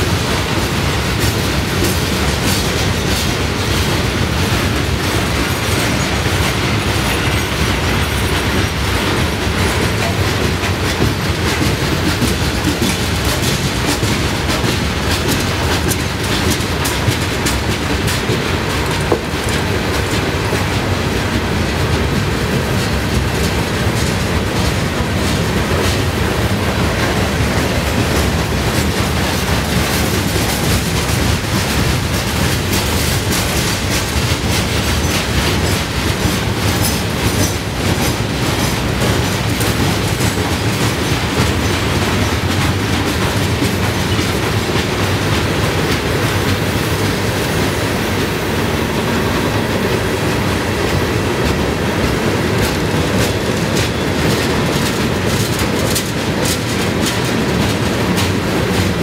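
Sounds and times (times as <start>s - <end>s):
train wheels rumbling on rails: 0.0s - 59.0s
clicks and clanks: 51.4s - 59.0s.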